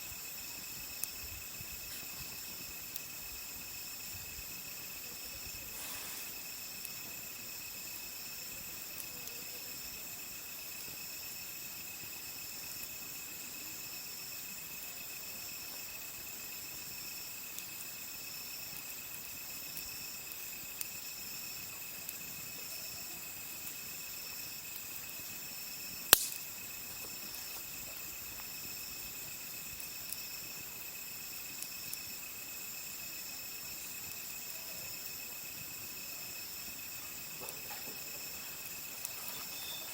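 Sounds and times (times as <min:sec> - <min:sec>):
campfire crackling and popping: 0:00.0 - 0:39.9
crickets and insects singing: 0:00.0 - 0:39.9.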